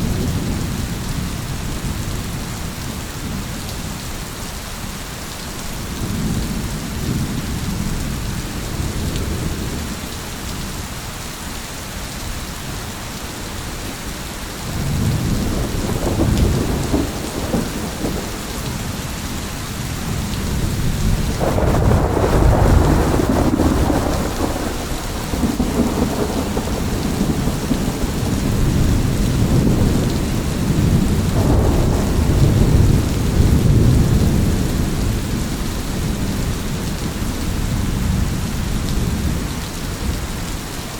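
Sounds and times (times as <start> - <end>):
heavy rain: 0.0 - 40.9
rolling thunder: 14.7 - 40.2.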